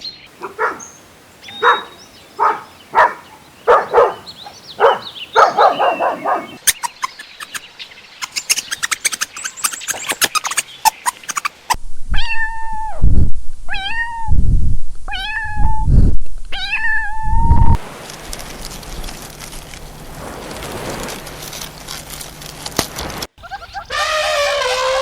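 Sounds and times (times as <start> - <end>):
steady background hiss: 0.0 - 5.4
cat meowing: 12.2 - 13.0, 13.7 - 14.3, 15.1 - 15.8, 16.5 - 17.5.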